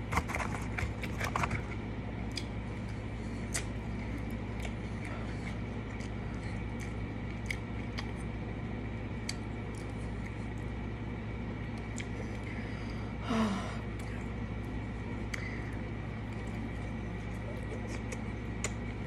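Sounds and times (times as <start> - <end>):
low background hum: 0.0 - 19.0
person chewing: 0.1 - 8.4, 9.1 - 10.7, 11.7 - 12.5.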